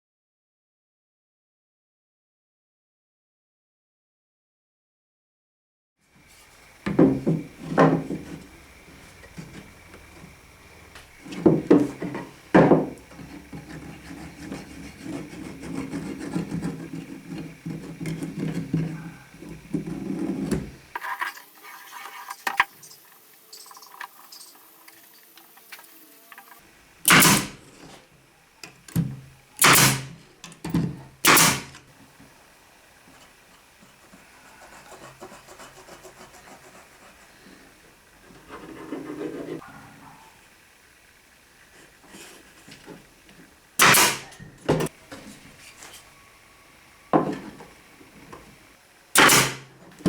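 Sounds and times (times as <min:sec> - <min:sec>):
loud strokes on wood: 0:06.8 - 0:27.7, 0:29.6 - 0:30.2, 0:31.2 - 0:31.8, 0:43.8 - 0:44.9, 0:49.1 - 0:49.8
rubbing or scraping wood: 0:11.2 - 0:23.0, 0:33.9 - 0:39.6, 0:41.7 - 0:43.1.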